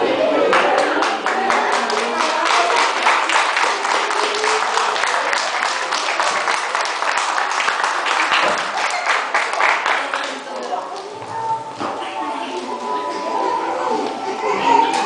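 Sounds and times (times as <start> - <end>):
voices: 0.0 - 15.0
audience applauding: 0.5 - 11.1.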